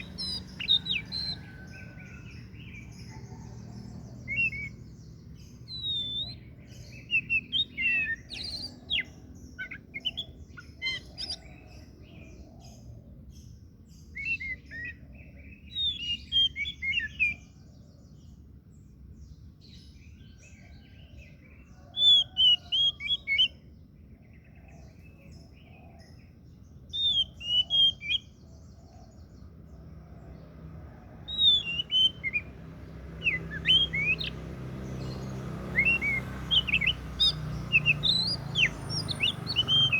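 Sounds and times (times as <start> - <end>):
bird singing whistled notes: 0.0 - 11.7, 14.0 - 17.6, 21.8 - 23.6, 26.8 - 29.0, 31.3 - 39.9.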